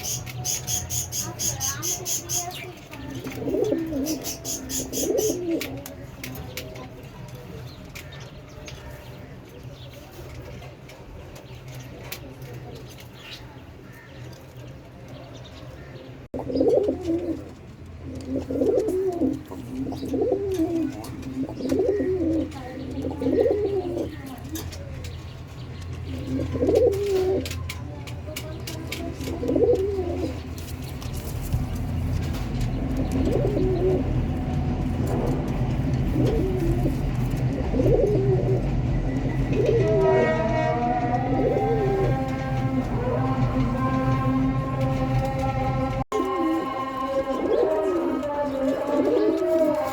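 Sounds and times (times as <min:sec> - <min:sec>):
pigeons cooing: 0:00.0 - 0:06.6, 0:15.8 - 0:24.9, 0:26.0 - 0:27.8, 0:28.4 - 0:40.2, 0:41.1 - 0:49.9.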